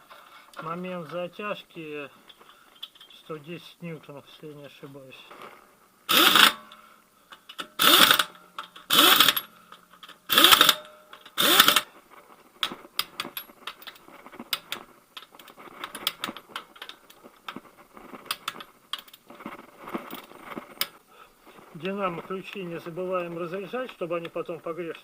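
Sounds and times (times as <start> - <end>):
torque wrench clicking: 6.1 - 6.6, 7.5 - 9.5, 10.3 - 11.9
impact wrench bursts: 6.1 - 6.7, 7.5 - 9.5, 10.2 - 11.9.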